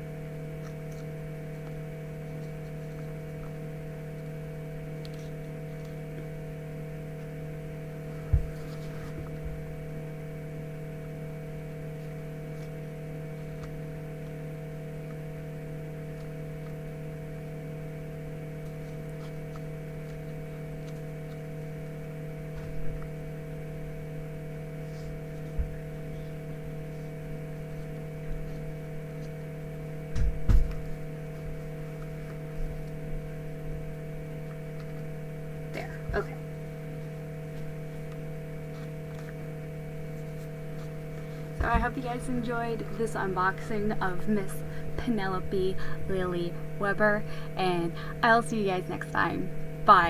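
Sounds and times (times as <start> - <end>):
electrical mains hum: 0.0 - 50.0
soft low thumps: 8.0 - 11.0, 22.0 - 34.5, 39.9 - 46.9.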